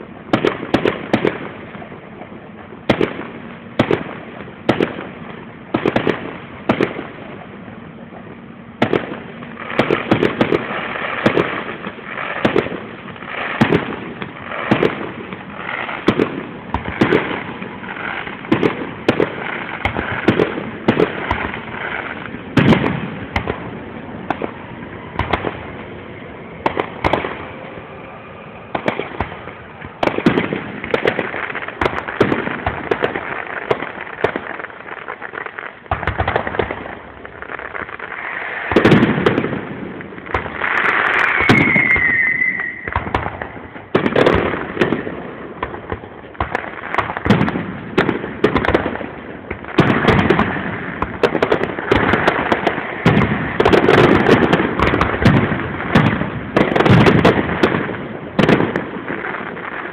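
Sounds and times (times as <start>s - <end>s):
fireworks bursting and crackling: 0.0s - 59.9s
falling whistle: 41.2s - 43.1s.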